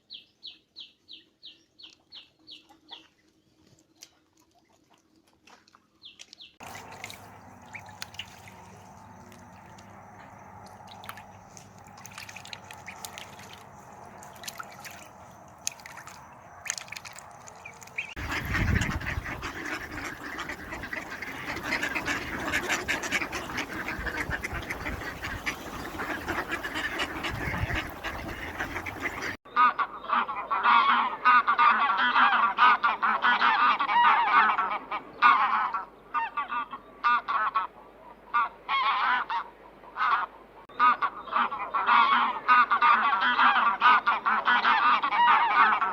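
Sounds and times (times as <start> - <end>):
geese honking: 6.6 - 37.7, 38.3 - 45.9.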